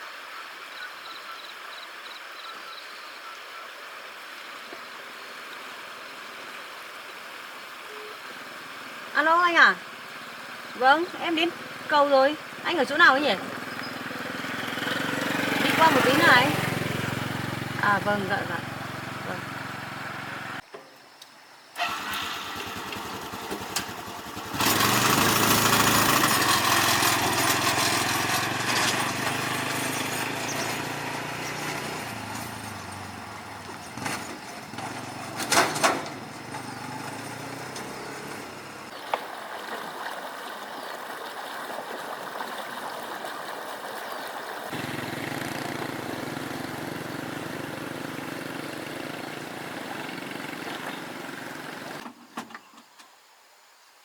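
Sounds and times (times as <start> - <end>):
small engine running: 10.5 - 20.6, 21.8 - 39.0, 44.7 - 52.1.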